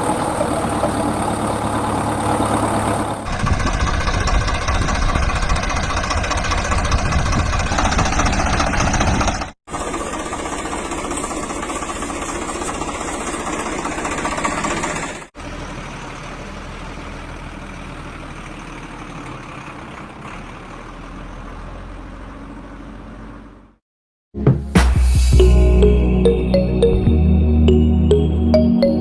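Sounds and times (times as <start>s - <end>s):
vehicle engine running: 0.0s - 23.8s
music: 24.4s - 29.0s.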